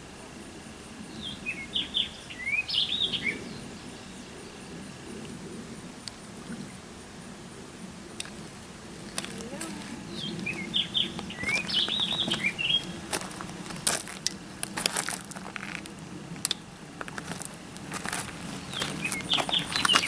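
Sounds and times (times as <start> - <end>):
small birds chirping: 0.8 - 6.8, 9.0 - 13.1, 17.9 - 20.0.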